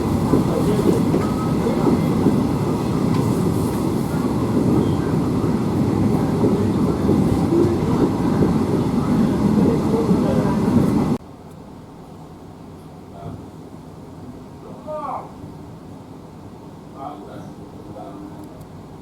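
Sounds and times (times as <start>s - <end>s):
train wheels rumbling on rail: 0.0s - 11.2s.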